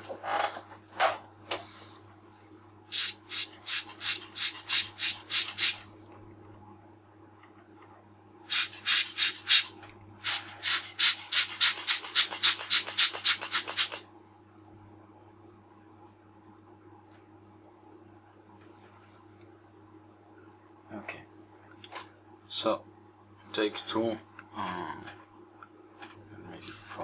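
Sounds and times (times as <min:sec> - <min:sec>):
air blower puffs: 0:02.9 - 0:06.0, 0:08.5 - 0:14.3.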